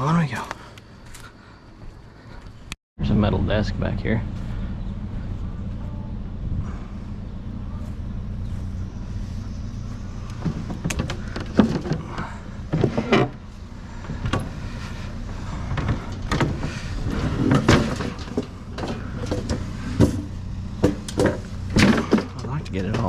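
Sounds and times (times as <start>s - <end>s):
low engine hum: 0.0s - 23.0s
items clanking in a dumpster: 10.4s - 23.0s.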